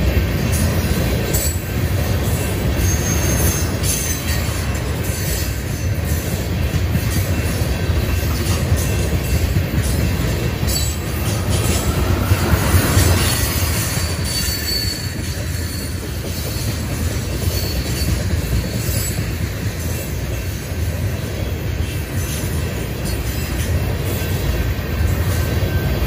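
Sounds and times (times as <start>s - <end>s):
train wheels rumbling on rails: 0.0s - 26.0s
high wheel squeal: 2.2s - 6.3s, 7.1s - 20.0s.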